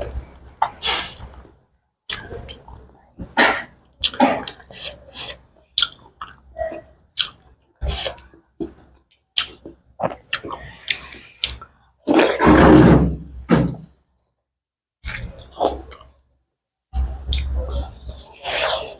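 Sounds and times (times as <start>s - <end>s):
chewing: 4.0s - 12.4s, 17.0s - 18.9s.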